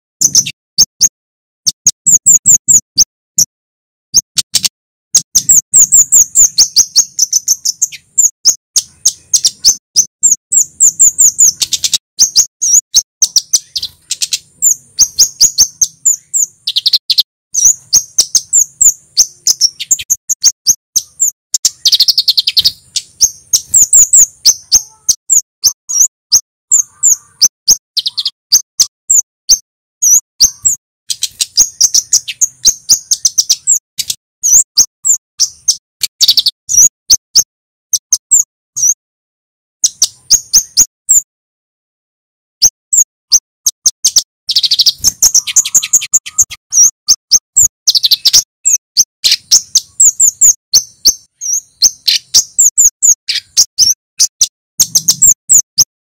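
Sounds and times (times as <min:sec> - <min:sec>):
bird singing fast sharp chirps: 0:00.2 - 0:03.5, 0:04.2 - 0:39.0, 0:39.8 - 0:41.3, 0:42.6 - 0:56.0.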